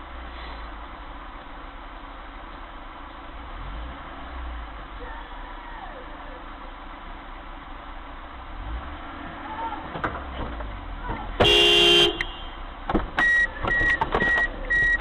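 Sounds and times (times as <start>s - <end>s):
car road and engine rumble: 0.0s - 15.0s
car horn blast: 11.4s - 12.6s.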